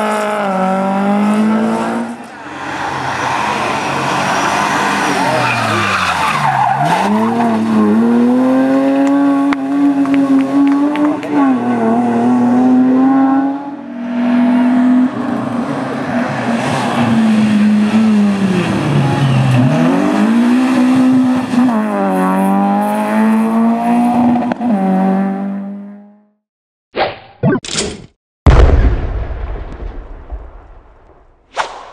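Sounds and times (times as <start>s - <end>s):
rally car engine at hard throttle: 0.0s - 26.2s.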